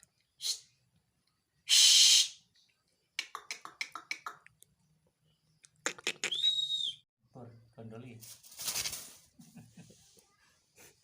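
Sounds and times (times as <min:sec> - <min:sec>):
bird hissing: 0:00.4 - 0:00.8, 0:01.7 - 0:02.4
bird clicking and chattering: 0:03.2 - 0:04.6, 0:05.6 - 0:06.4.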